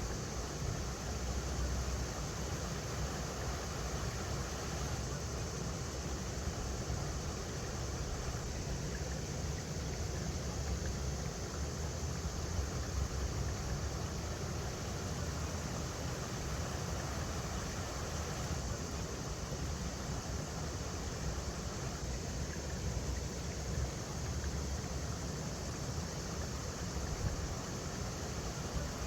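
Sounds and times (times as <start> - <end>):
river rushing over rocks: 15.0 - 18.8.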